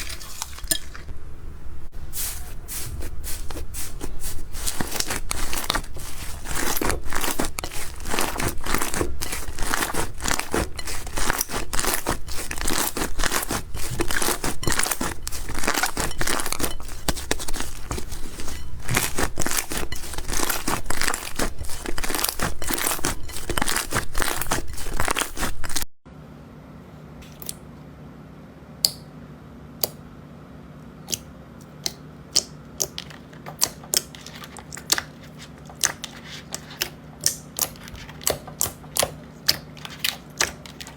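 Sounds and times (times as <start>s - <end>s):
low steady hum: 0.0s - 40.9s
slime crackling and popping: 4.0s - 25.8s.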